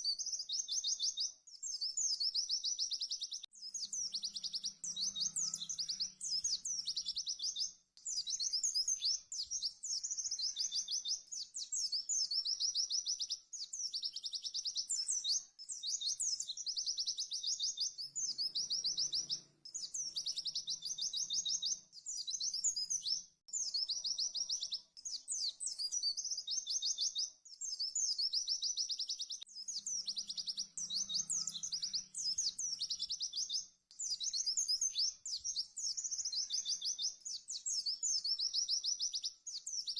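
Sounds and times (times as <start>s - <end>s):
bird high-pitched trills: 3.3s - 7.6s, 8.2s - 11.3s, 29.6s - 33.5s.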